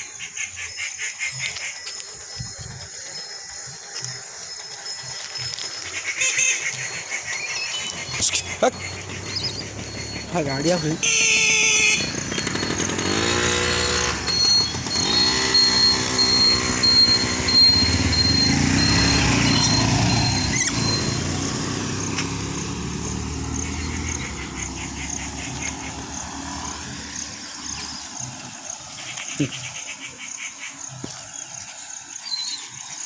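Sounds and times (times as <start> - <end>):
vehicles passing with engines revving: 0.0 - 33.0.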